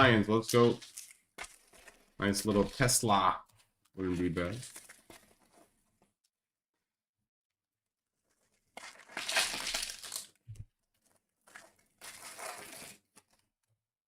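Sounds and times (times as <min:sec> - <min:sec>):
wrapper tearing: 0:00.1 - 0:03.0, 0:04.4 - 0:05.5, 0:08.3 - 0:10.4, 0:11.0 - 0:13.4.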